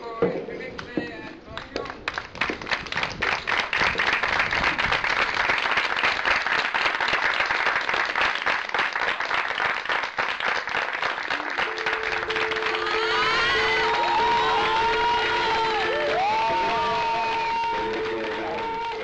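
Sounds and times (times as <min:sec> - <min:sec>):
audience applauding: 0:01.6 - 0:19.0
steady two-note tone: 0:11.5 - 0:19.0.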